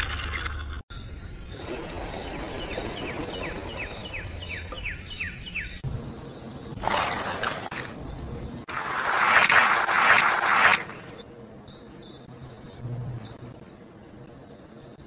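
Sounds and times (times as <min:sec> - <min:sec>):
bird chirping falling notes: 0:01.0 - 0:05.8.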